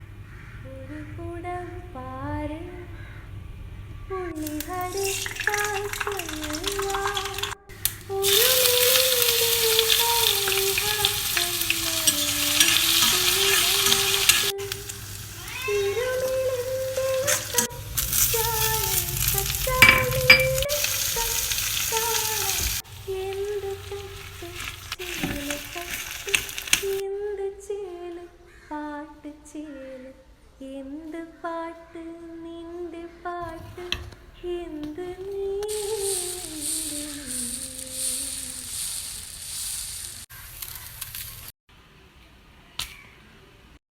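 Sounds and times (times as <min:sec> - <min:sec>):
food sizzling in a pan: 0:04.4 - 0:27.0, 0:35.6 - 0:41.5.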